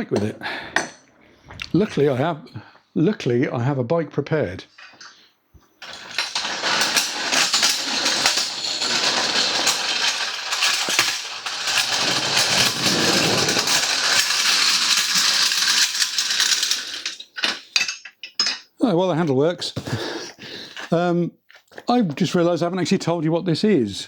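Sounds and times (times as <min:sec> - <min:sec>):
motorcycle lift rattling and scraping: 0:05.9 - 0:15.8.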